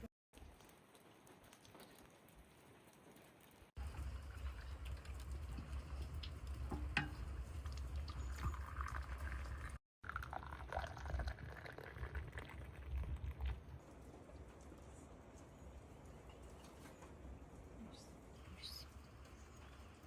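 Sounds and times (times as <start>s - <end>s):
liquid pouring: 3.8s - 13.8s.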